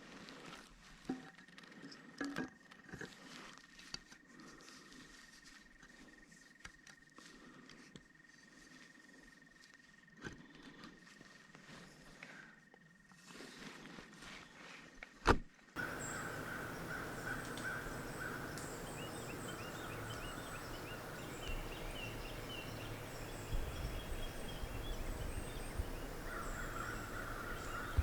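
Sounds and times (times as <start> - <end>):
birds calling and chirping: 15.8 - 28.0
steady outdoor hiss: 15.8 - 28.0.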